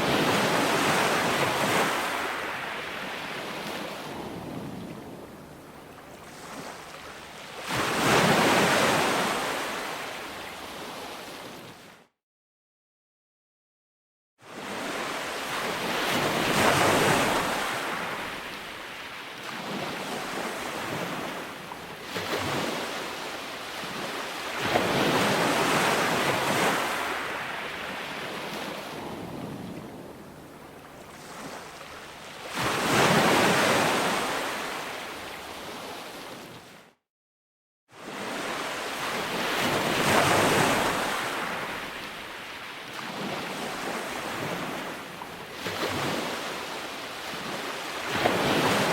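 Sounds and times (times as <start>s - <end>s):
ocean waves breaking on beach: 0.0s - 12.0s, 14.4s - 37.0s, 38.0s - 48.9s.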